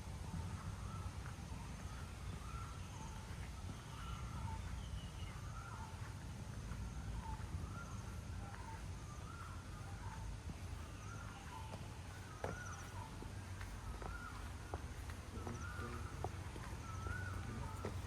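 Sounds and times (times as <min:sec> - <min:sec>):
birds calling: 0:00.0 - 0:18.0
steady low rumble: 0:00.0 - 0:18.0.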